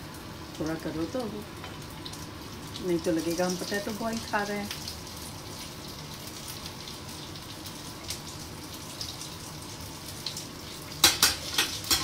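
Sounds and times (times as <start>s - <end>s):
patties sizzling in oil: 0.0s - 12.0s.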